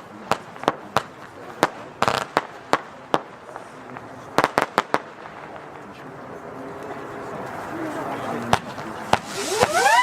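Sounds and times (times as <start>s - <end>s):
firework bangs: 0.0s - 5.8s, 8.3s - 10.0s.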